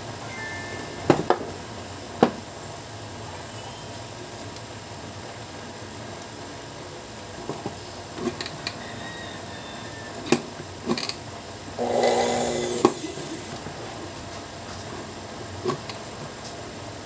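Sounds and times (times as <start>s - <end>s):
sewing machine motor humming: 11.8s - 13.7s.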